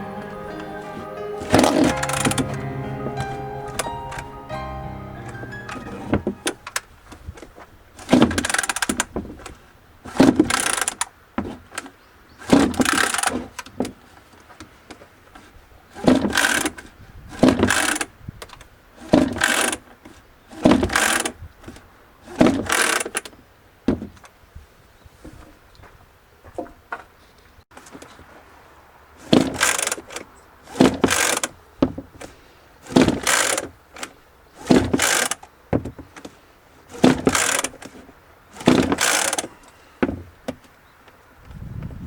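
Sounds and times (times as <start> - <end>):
chainsaw pull-start cranking: 8.0 - 9.1, 10.1 - 11.1, 12.4 - 13.7, 16.0 - 18.1, 19.0 - 19.9, 20.6 - 21.4, 22.3 - 23.3, 29.3 - 31.6, 32.9 - 35.5, 36.9 - 37.9, 38.6 - 39.5.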